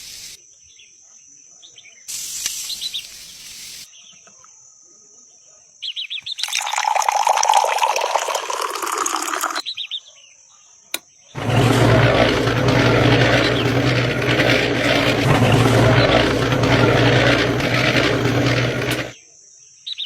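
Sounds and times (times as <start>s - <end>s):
water running and gurgling: 6.4s - 9.6s.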